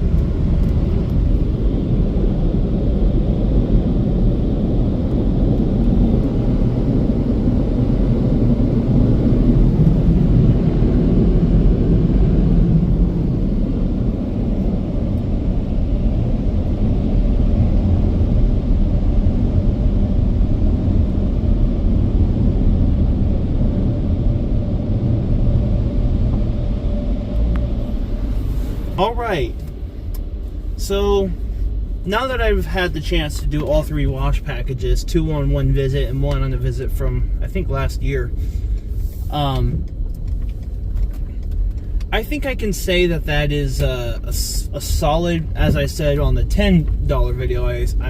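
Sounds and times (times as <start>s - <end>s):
car engine rumble inside cabin: 0.0s - 48.0s.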